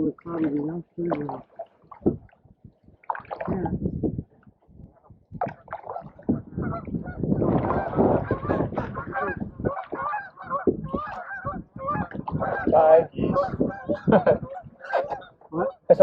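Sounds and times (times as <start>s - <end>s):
geese honking: 5.9s - 16.0s.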